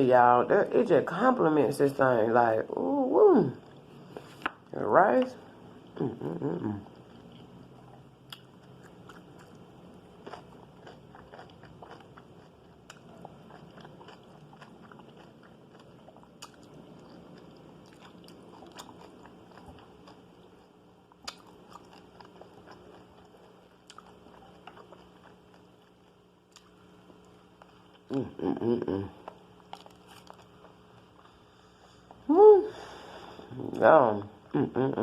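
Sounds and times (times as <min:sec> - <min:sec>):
chewing and mouth sounds: 0:05.8 - 0:31.4.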